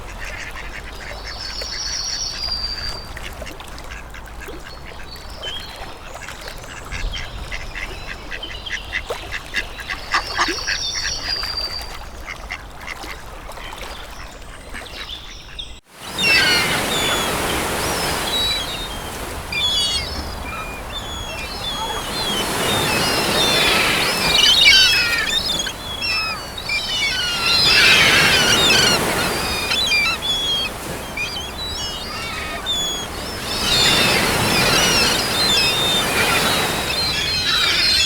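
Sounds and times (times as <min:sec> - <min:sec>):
songbird trill: 0:15.2 - 0:38.0
quack-like bird calls: 0:20.6 - 0:38.0.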